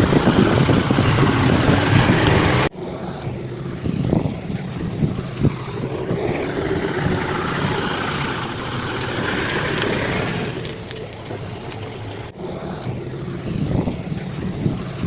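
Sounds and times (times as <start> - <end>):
diesel engine running: 0.0 - 15.0
noisy rush: 0.0 - 15.0.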